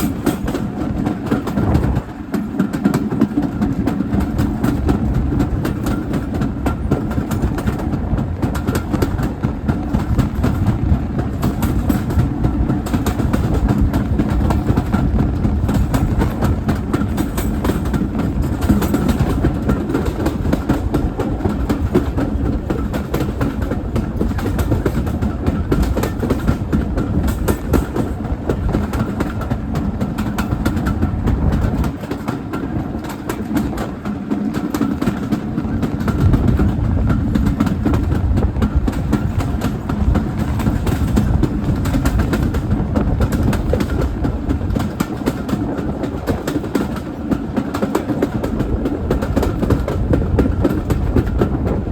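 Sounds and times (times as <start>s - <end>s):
train rumbling along track: 0.0s - 51.9s
wheels clicking over rail joints: 0.0s - 51.9s.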